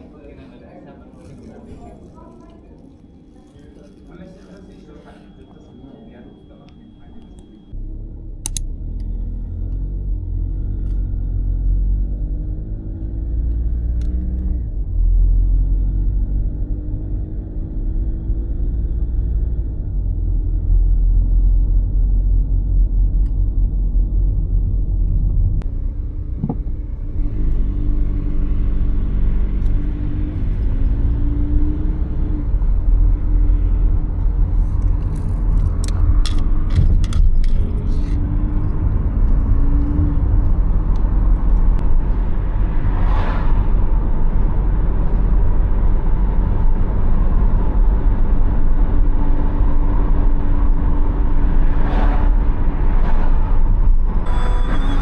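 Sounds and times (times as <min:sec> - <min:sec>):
road rumble inside car: 0:06.7 - 0:55.0
car engine revving: 0:25.6 - 0:55.0.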